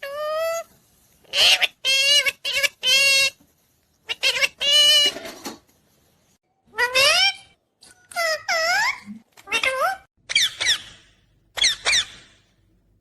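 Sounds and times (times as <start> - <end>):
parrot high-pitched calls: 0.0 - 3.4, 4.0 - 5.2, 6.7 - 12.4.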